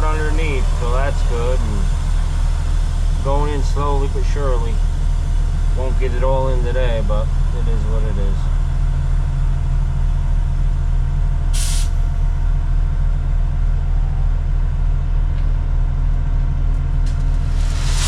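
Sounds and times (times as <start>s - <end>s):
diesel engine humming: 0.0s - 18.0s
air hiss: 11.6s - 12.0s, 17.4s - 18.0s.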